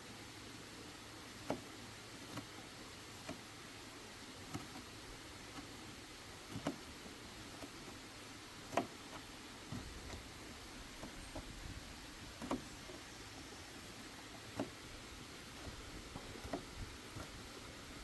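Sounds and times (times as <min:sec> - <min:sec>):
steady low hiss: 0:00.0 - 0:18.0
light knocks and clicks: 0:06.4 - 0:06.9, 0:08.7 - 0:10.4, 0:12.3 - 0:13.0, 0:15.6 - 0:17.4.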